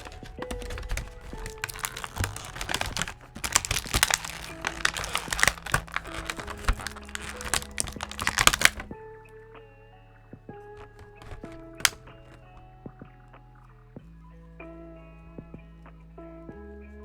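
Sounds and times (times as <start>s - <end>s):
plastic packaging crinkling: 0.0s - 8.9s, 10.8s - 12.6s.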